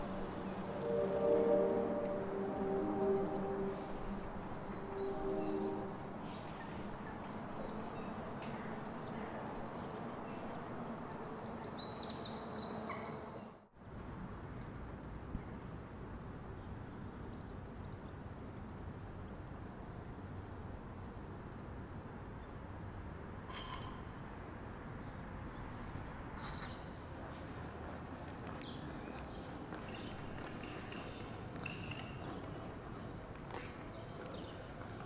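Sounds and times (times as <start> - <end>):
songbirds chirping and twittering: 0.0 - 18.3, 28.4 - 35.0
outdoor background noise: 0.0 - 35.0.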